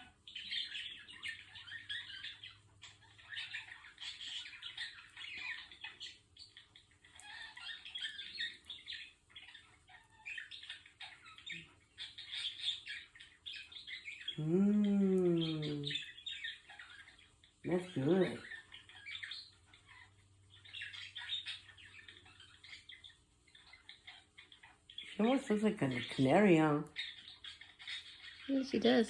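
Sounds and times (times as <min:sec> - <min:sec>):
person humming: 0:14.4 - 0:16.0.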